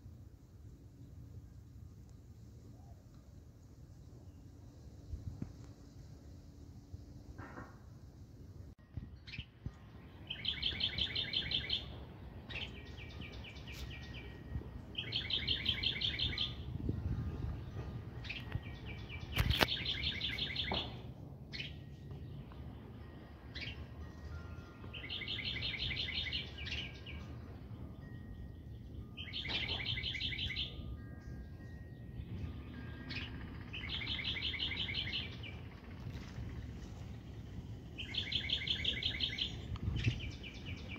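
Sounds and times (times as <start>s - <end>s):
songbird trilling: 9.3s - 14.4s, 15.0s - 16.7s, 18.3s - 21.8s, 24.9s - 27.2s, 28.0s - 31.8s, 33.1s - 35.8s, 37.9s - 40.9s.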